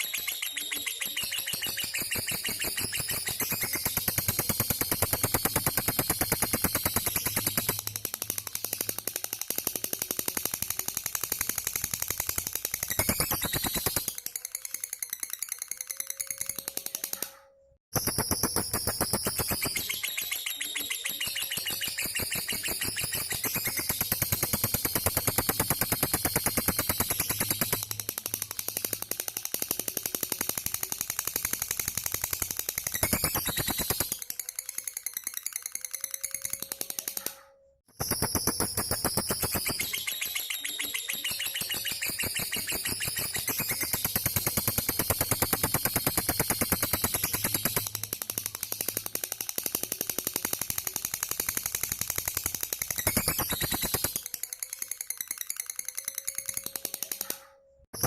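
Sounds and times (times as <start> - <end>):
bird chattering trill: 0.0 - 7.7, 18.4 - 25.8, 38.7 - 45.8
lovebird rapid chirping chatter: 0.0 - 16.9, 18.0 - 36.9, 38.0 - 49.4, 50.2 - 57.0.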